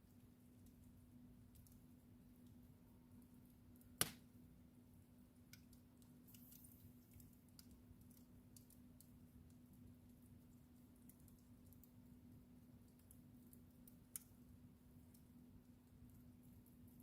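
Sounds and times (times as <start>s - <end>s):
wood fire crackling: 0.0s - 17.0s
sharp pops from fire: 3.8s - 4.4s.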